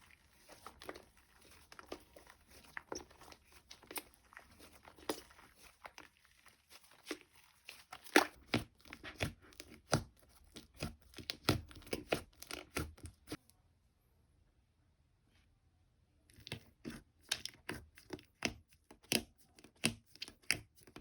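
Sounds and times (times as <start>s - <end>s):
slime wet pops and crackles: 0.3s - 13.4s.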